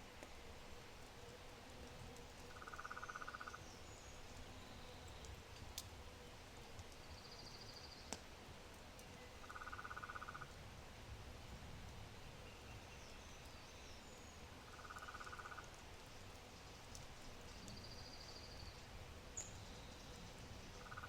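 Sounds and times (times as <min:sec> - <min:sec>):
wood fire ticking and popping: 0:00.2 - 0:03.6, 0:04.2 - 0:12.0, 0:14.6 - 0:19.6.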